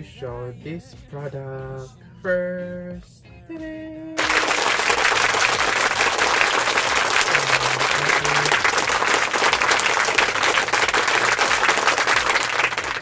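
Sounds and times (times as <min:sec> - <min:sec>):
applause: 0:04.2 - 0:13.0.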